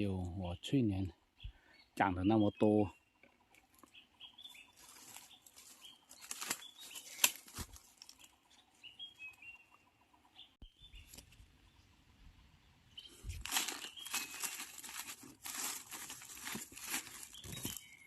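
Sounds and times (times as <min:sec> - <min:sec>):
high bird chirps: 0:01.4 - 0:11.2, 0:12.8 - 0:15.0, 0:16.4 - 0:18.0
dry leaves rustling and crackling: 0:04.7 - 0:08.4, 0:13.1 - 0:18.0
twig snapping: 0:04.8 - 0:08.3, 0:13.3 - 0:17.8.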